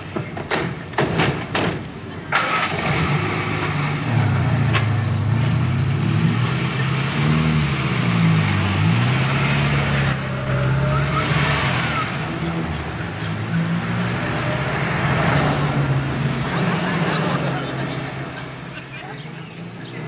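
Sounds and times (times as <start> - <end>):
car engines starting and revving: 0.0 - 20.0.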